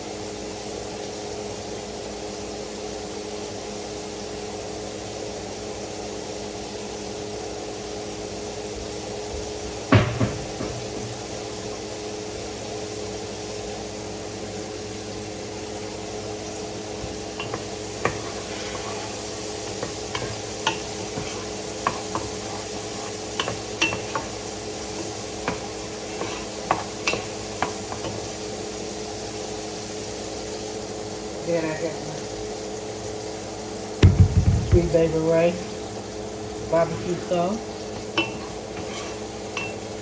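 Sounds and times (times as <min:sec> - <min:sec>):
food sizzling in a pan: 0:00.0 - 0:40.0
single knock: 0:09.9 - 0:11.2, 0:34.0 - 0:34.9
utensil clinking against pan: 0:17.4 - 0:24.4, 0:25.0 - 0:28.3, 0:37.9 - 0:40.0
steady hum: 0:34.0 - 0:40.0.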